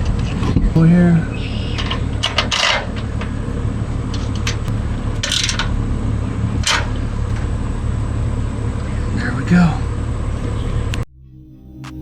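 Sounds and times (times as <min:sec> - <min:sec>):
low hum: 0:00.0 - 0:12.0
metal hardware clinking and scraping: 0:01.8 - 0:03.4, 0:04.1 - 0:05.8.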